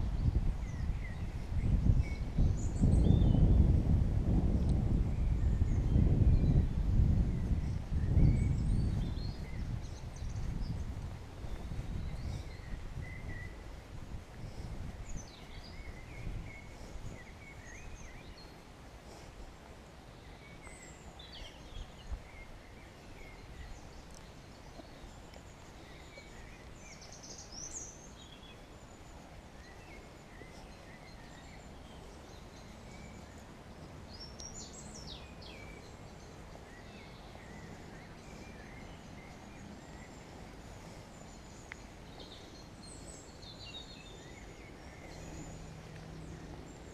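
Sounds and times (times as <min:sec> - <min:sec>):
songbirds chirping and trilling: 0:00.0 - 0:46.9
distant traffic rumble: 0:22.2 - 0:46.9.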